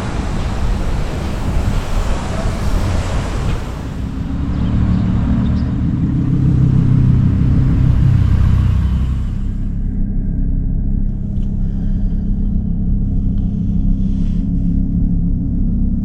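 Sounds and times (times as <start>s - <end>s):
traffic noise: 0.0s - 9.8s
car engine rumbling: 0.0s - 16.0s.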